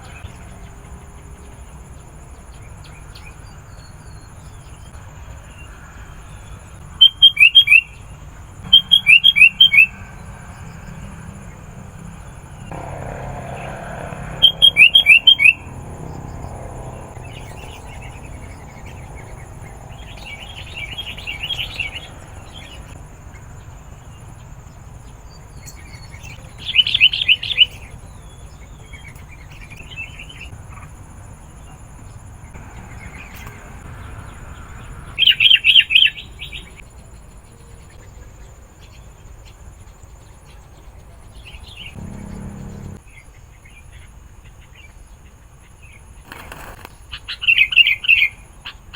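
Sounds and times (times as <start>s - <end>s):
bird chattering calls: 8.6s - 10.2s, 12.6s - 15.8s, 41.9s - 43.0s.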